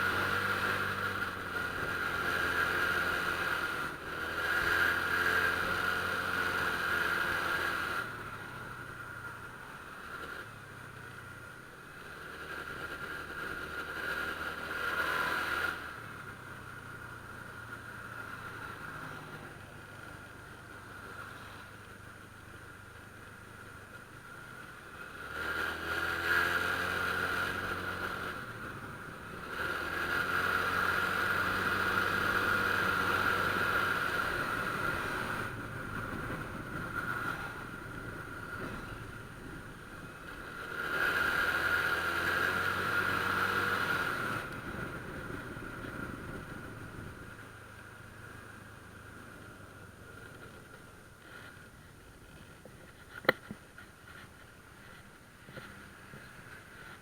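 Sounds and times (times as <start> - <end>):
scooter engine accelerating: 0.0 - 9.0, 24.7 - 51.7.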